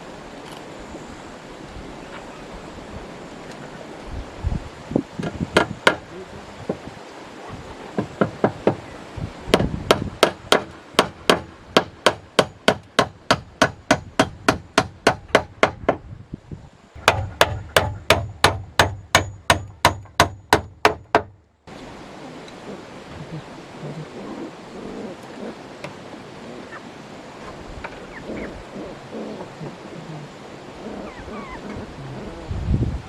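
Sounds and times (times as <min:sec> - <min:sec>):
hammer striking: 0:09.6 - 0:15.9, 0:17.0 - 0:21.3.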